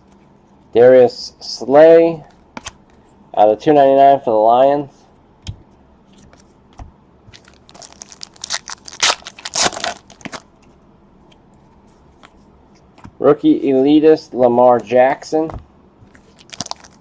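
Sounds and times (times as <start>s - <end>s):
plastic wrapper crinkling and tearing: 7.3s - 10.4s, 16.2s - 17.0s.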